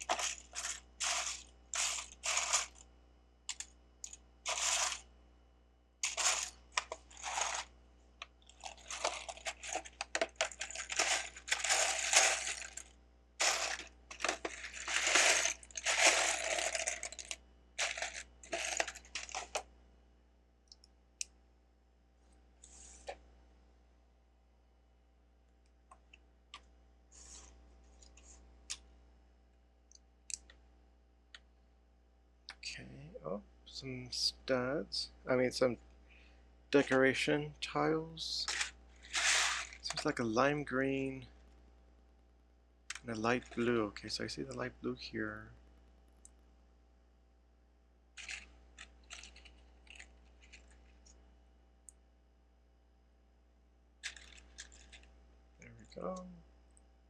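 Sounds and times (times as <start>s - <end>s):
rustle of bricks being sorted: 0.0s - 2.8s, 4.5s - 5.0s, 6.0s - 7.7s, 8.5s - 19.6s, 38.5s - 40.2s
plastic pieces clicking: 48.2s - 50.8s, 54.0s - 55.1s.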